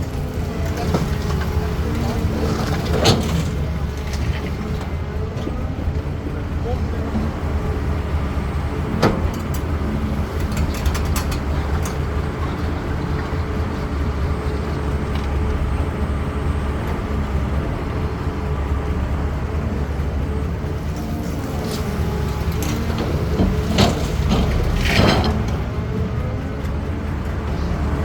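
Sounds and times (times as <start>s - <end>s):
excavator diesel engine droning: 0.0s - 28.0s
sharp knocks and clicks: 9.0s - 12.2s.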